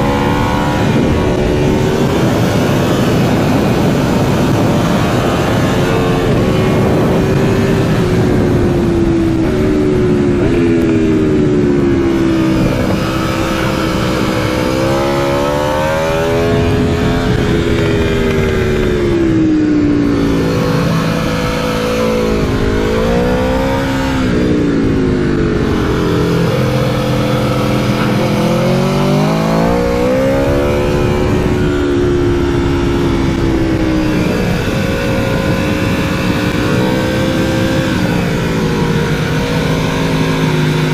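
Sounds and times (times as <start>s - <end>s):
motorcycle engine at speed: 0.0s - 40.9s.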